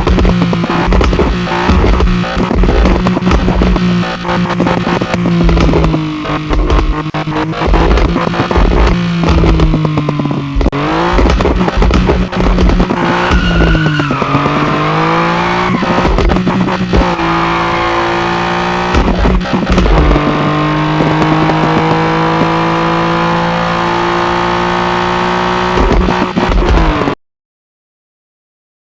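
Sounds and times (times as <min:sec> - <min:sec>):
exhaust crackles and pops: 0:00.0 - 0:23.6, 0:24.6 - 0:27.2
car engine running: 0:00.0 - 0:27.2.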